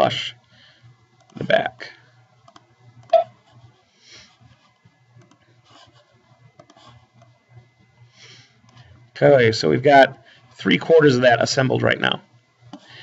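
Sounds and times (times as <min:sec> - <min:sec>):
low steady hum: 0:00.0 - 0:13.0
computer mouse clicking: 0:01.2 - 0:01.4, 0:02.4 - 0:03.2, 0:05.2 - 0:07.4.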